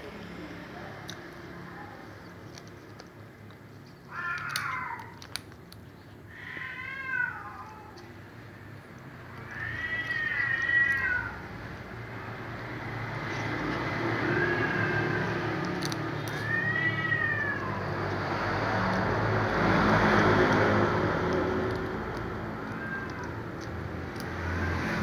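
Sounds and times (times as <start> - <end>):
cat meowing: 4.1 - 5.2, 6.3 - 8.1, 9.3 - 11.7, 13.9 - 25.0.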